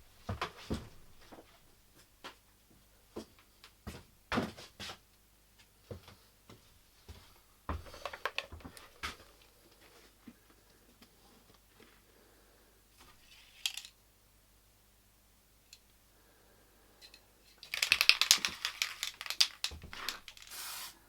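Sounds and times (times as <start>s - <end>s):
metal parts knocking and clinking: 17.0s - 20.5s.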